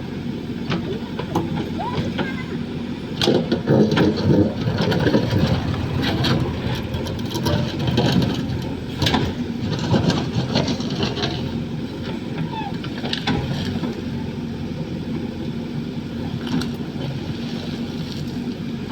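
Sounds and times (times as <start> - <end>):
machine engine running: 2.6 - 16.4.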